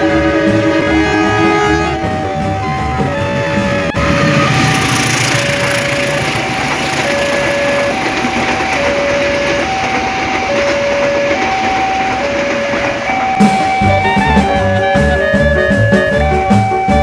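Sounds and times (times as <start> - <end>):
passing train rolling: 0.0 - 17.0
two-tone crossing chime: 13.1 - 17.0
music with bass and guitar: 13.4 - 17.0.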